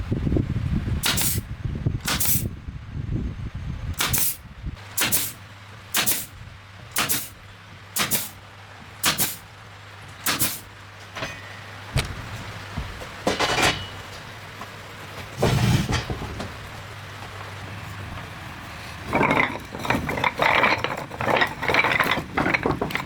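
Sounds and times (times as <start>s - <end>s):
rough scraping: 15.4s - 16.7s, 18.7s - 23.0s.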